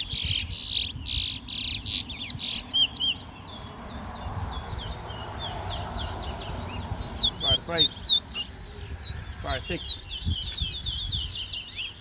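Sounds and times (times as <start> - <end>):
finch singing rapid high notes: 4.2 - 11.2.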